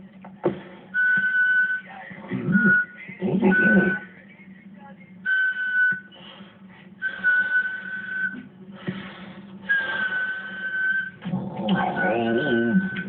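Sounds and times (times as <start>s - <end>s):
high breathy whistled notes: 7.0s - 8.4s, 9.6s - 11.2s.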